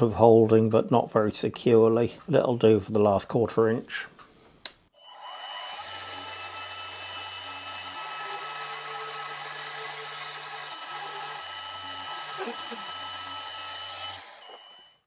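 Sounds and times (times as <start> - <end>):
drill spindle motor whine: 5.0 - 15.0.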